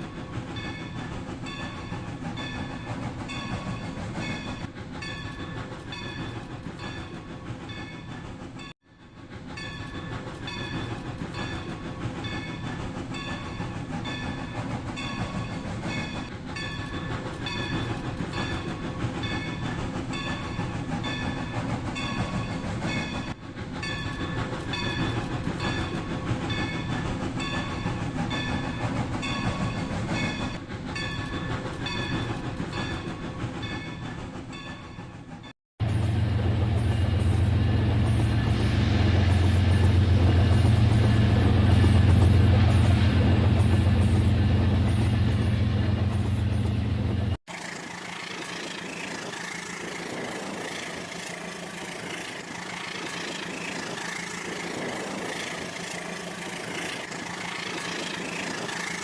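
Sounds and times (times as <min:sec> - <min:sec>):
toy train motor noise: 0:47.5 - 0:59.0.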